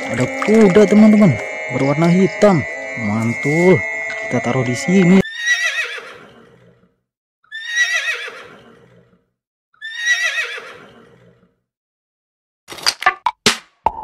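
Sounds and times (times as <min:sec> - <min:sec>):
horse whinnying: 0:05.2 - 0:09.2, 0:09.8 - 0:11.6.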